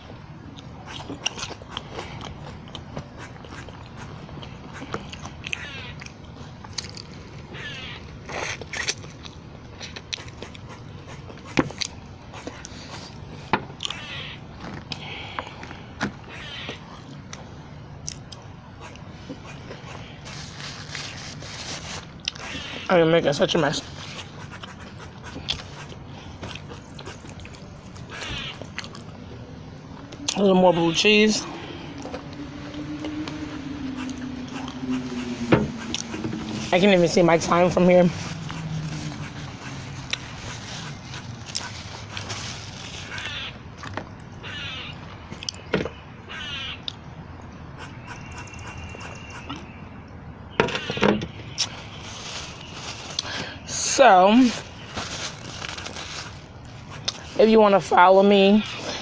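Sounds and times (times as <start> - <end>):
person chewing food: 0.5 - 7.4, 8.0 - 13.2, 24.3 - 29.2, 38.2 - 42.9
wet eating mouth sounds: 8.2 - 12.9.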